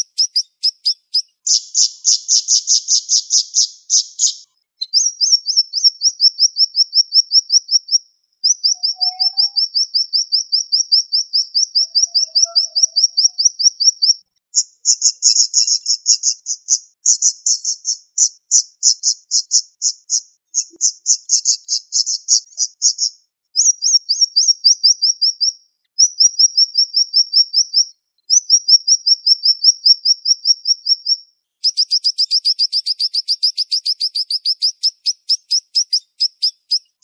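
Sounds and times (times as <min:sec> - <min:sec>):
songbird singing high notes: 0:08.5 - 0:14.2.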